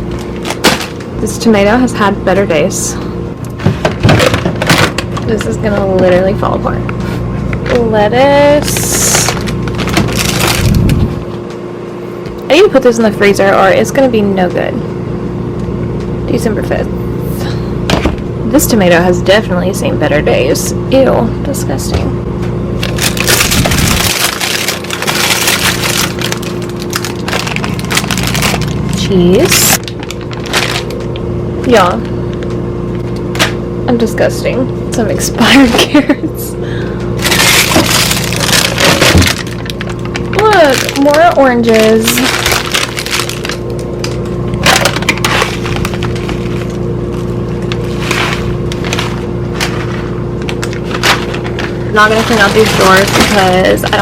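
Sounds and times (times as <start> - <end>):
plastic packaging crinkling: 0.0 - 1.1, 3.6 - 5.5, 8.4 - 11.3, 22.8 - 31.3, 37.2 - 54.0
steady hum: 0.0 - 54.0.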